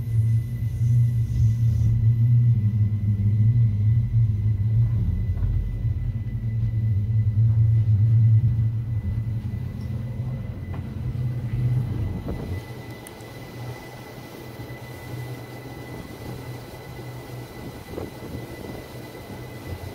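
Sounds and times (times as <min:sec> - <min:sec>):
train rumble from inside: 0:00.0 - 0:19.9.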